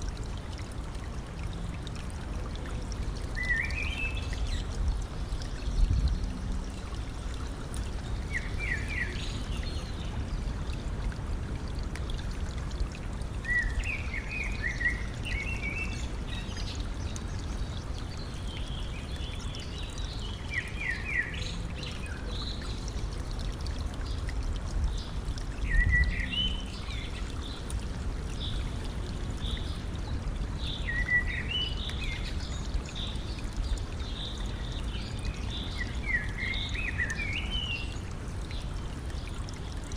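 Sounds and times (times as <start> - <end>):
stream water trickling: 0.0 - 39.9
songbird chirping: 30.6 - 38.0.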